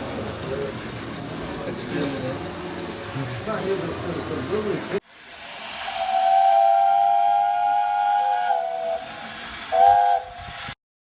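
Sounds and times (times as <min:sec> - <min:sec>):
steam hissing: 0:04.0 - 0:10.8
steam locomotive whistle: 0:05.2 - 0:10.8.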